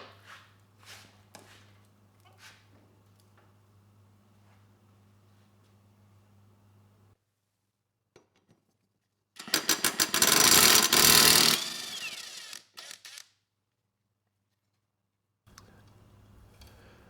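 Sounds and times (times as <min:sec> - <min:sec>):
impact wrench hammering: 0:09.4 - 0:13.0
motor winding down whine: 0:11.4 - 0:13.2.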